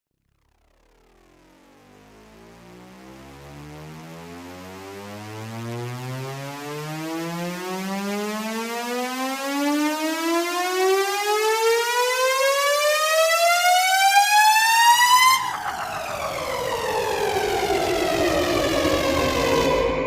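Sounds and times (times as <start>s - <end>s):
buzzy synthesized rising tone: 0.9s - 20.0s.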